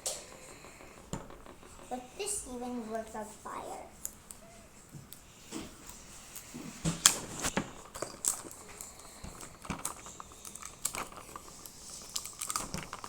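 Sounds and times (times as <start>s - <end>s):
plastic packaging crinkling: 7.1s - 13.0s.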